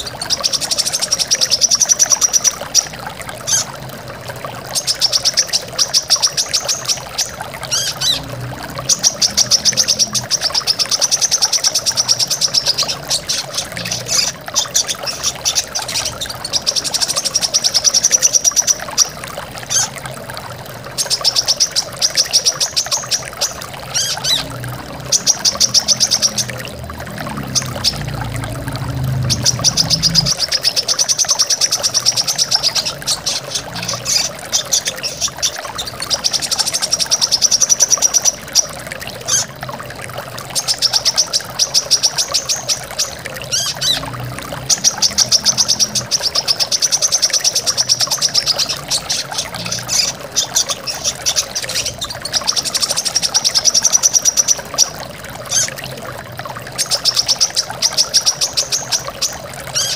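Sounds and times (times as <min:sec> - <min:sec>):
waterfall rushing: 0:22.4 - 0:37.0.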